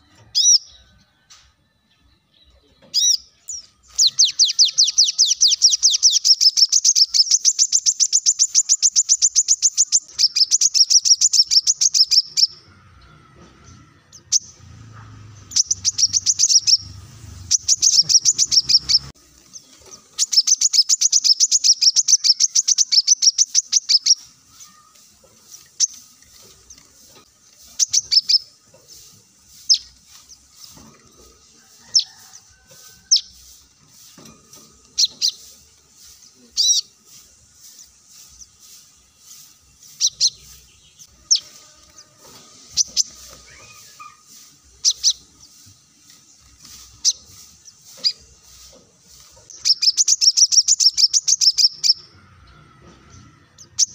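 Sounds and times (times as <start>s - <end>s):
bird chirps: 0.0s - 0.9s, 1.8s - 53.9s
bird trilling: 3.0s - 12.7s, 15.5s - 19.2s, 20.2s - 24.9s, 27.7s - 28.6s, 40.0s - 45.3s, 49.5s - 52.5s.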